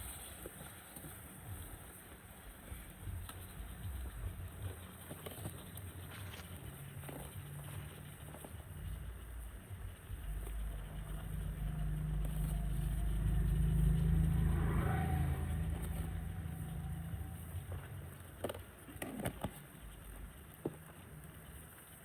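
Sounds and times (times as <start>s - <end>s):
vehicle engine passing by: 9.7s - 18.5s.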